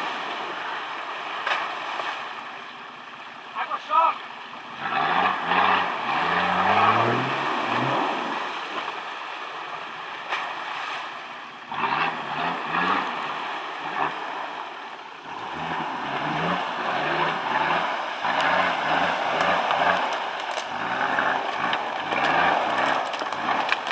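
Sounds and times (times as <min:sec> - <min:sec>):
diesel engine revving: 0:04.4 - 0:09.0, 0:11.6 - 0:23.9.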